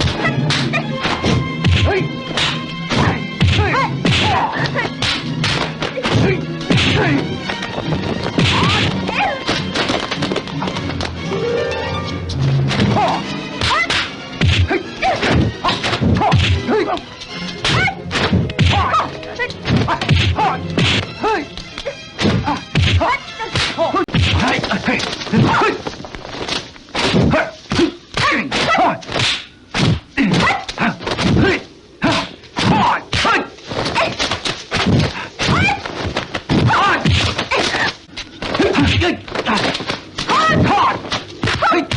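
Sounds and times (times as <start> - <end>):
punch and kick hits: 0.0 - 7.2, 8.2 - 8.9, 13.6 - 16.6, 19.7 - 21.1, 22.2 - 23.0, 27.0 - 31.5
fighters shouting and grunting: 0.0 - 9.8, 12.7 - 25.9, 27.0 - 41.9
film score music: 0.0 - 41.9
fighters shouting: 1.7 - 7.3, 12.8 - 17.1, 30.2 - 34.2, 38.6 - 41.9.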